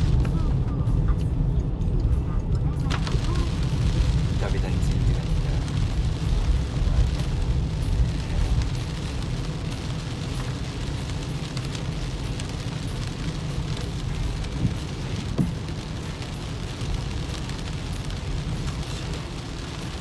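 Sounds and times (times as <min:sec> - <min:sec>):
rain ticking on car body: 0:00.0 - 0:20.0
road and engine rumble: 0:00.0 - 0:20.0.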